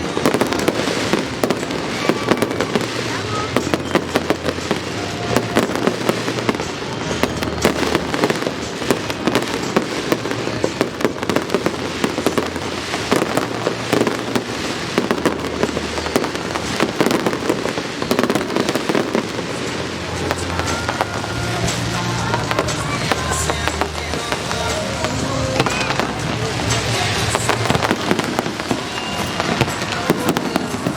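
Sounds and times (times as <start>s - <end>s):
fireworks bangs and crackling: 0.0s - 30.9s.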